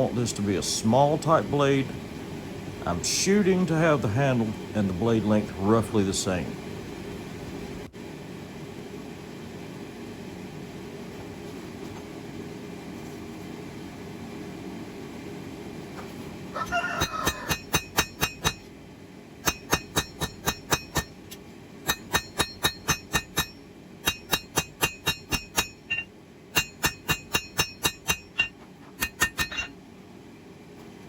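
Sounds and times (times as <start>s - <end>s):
hammer ringing on steel anvil: 17.0s - 18.6s, 19.4s - 21.2s, 21.9s - 29.7s.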